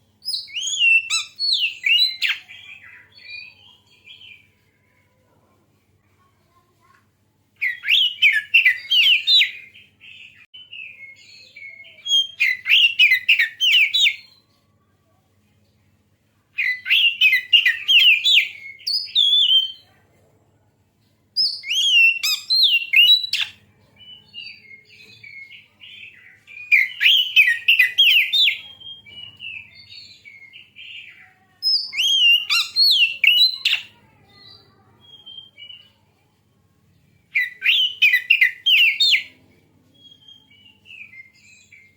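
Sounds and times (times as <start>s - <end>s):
magpie-robin whistled song: 0.2s - 4.5s, 7.6s - 14.4s, 16.6s - 19.9s, 21.4s - 36.0s, 37.2s - 41.9s
soft bird twittering: 21.4s - 36.2s.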